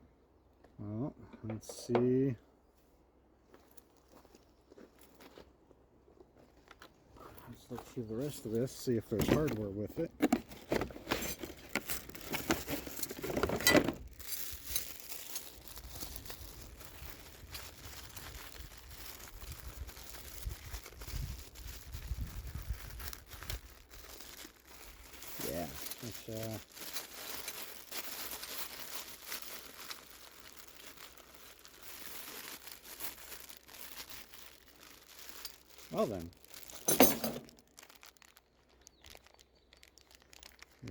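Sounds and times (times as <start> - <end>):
packaging rustling and crinkling: 6.6 - 40.9
small clicks and crackles: 11.2 - 40.9.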